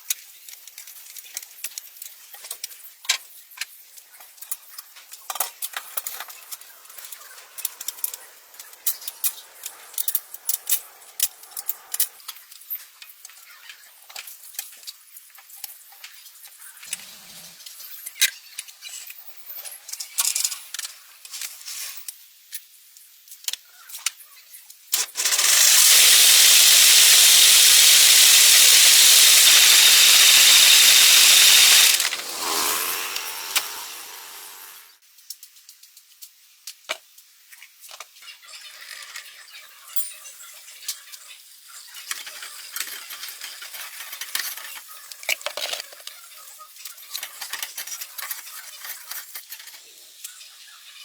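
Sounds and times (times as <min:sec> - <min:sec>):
loud rushing hiss: 0:25.0 - 0:34.9.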